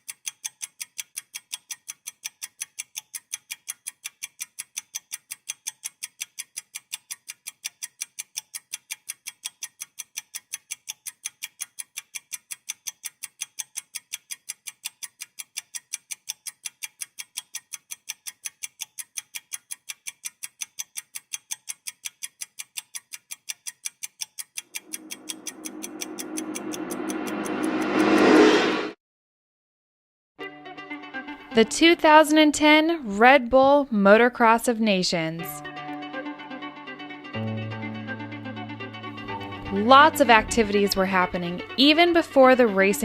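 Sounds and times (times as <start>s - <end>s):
rapid clock ticking: 0.0s - 28.4s, 39.2s - 43.0s.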